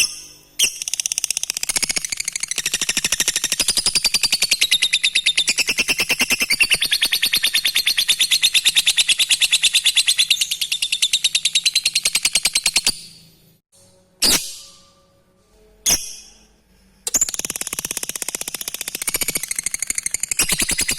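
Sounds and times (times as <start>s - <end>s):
lovebird chattering trill: 17.1s - 20.9s.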